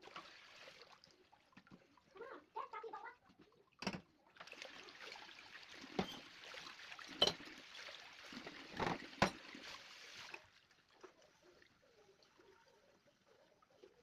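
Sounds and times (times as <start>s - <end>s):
tap water running into sink: 3.4s - 10.5s
dishes clinking: 6.0s - 6.2s, 7.2s - 7.4s.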